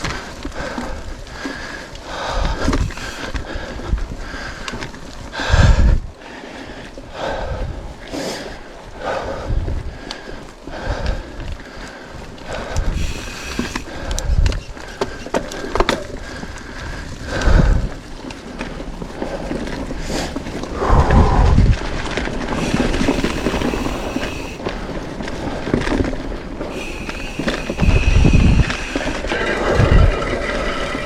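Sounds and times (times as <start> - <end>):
bike rattling over bumps: 0.0 - 31.0
bike tyres rolling on dirt: 0.0 - 31.0
heavy low rumbles: 20.6 - 24.8, 25.5 - 31.0.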